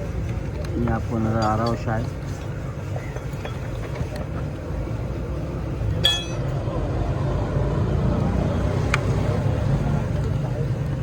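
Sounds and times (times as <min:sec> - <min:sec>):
sharp metallic clink: 0:06.0 - 0:06.5.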